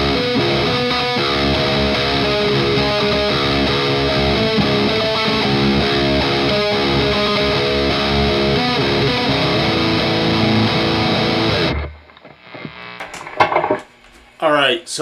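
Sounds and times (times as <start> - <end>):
overdriven electric guitar chords: 0.0 - 13.8.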